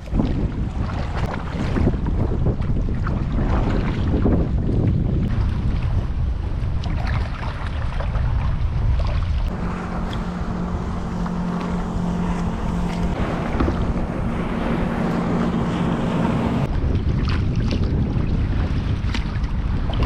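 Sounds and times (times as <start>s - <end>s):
wind rumbling on microphone: 0.0s - 20.0s
light splashes or knocks: 9.0s - 17.9s
low engine hum: 9.3s - 17.0s.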